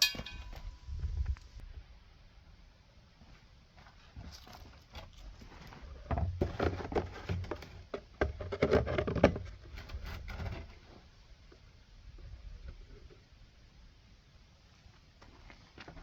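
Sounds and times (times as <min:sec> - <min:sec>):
clatter of tools and metal parts: 0:00.0 - 0:01.0.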